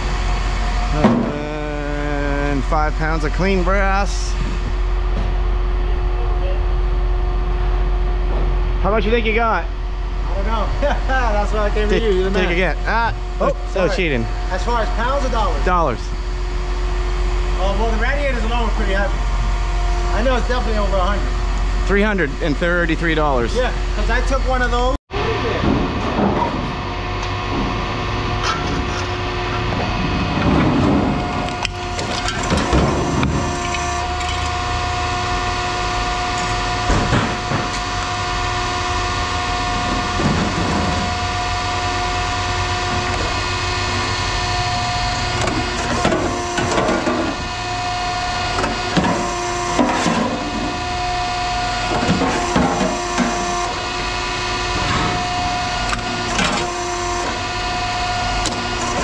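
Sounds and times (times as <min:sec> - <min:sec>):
machine hum: 0:00.0 - 0:59.0.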